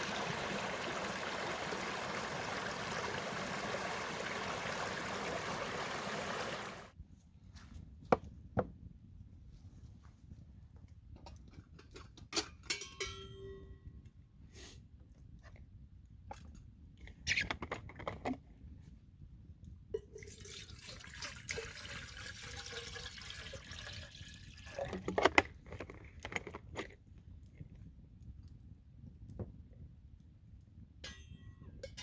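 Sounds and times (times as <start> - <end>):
liquid pouring: 0.0 - 6.9, 20.0 - 25.2
metallic clink: 12.7 - 13.7.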